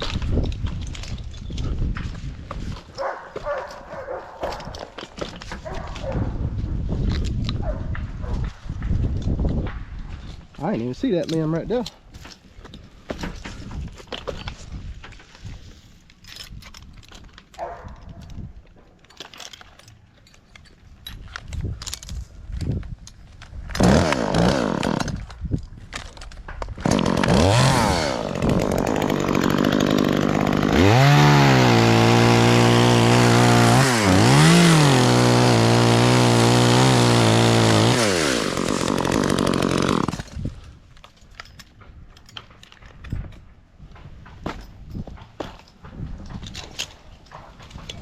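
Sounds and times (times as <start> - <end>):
chainsaw revving: 23.8 - 25.2, 26.8 - 40.4.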